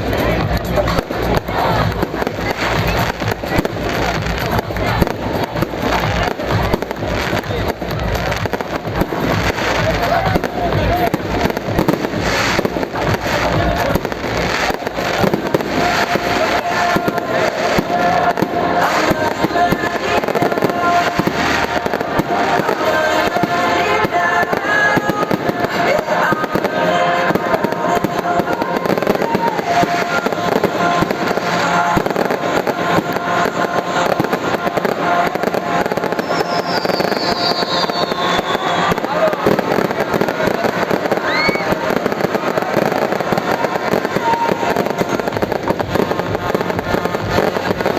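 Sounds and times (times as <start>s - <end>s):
fireworks banging and crackling: 0.0s - 47.9s
music playing: 0.0s - 47.9s
falling firework whistle: 35.8s - 40.2s, 41.1s - 45.4s.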